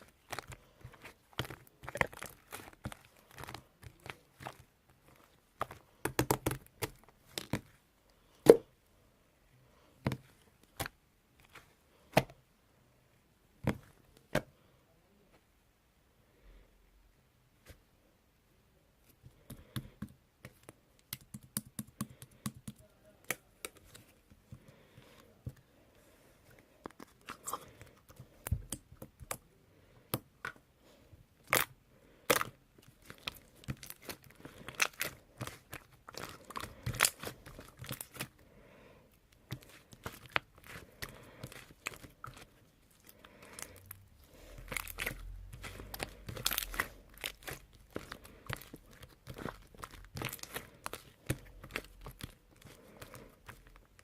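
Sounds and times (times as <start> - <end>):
crinkly wrapping handled and torn: 0.0 - 7.7, 31.4 - 38.4, 39.3 - 54.0.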